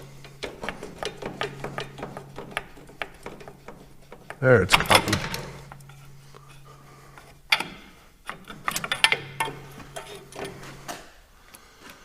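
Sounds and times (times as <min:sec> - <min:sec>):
steady low hum: 0:00.0 - 0:12.0
metal clicks of hand tools: 0:07.5 - 0:10.6.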